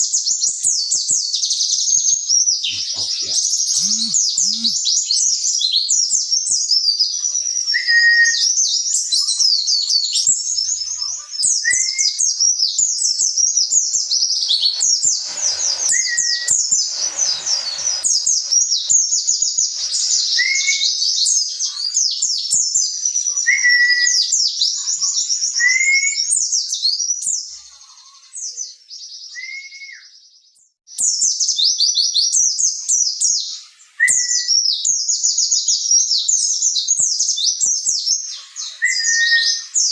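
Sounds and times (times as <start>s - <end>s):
bird twittering song: 0.0s - 39.9s
lower bird whistles: 7.7s - 8.5s, 11.6s - 12.3s, 13.0s - 21.3s, 25.5s - 26.3s, 29.3s - 30.1s, 34.0s - 34.7s, 38.8s - 39.9s.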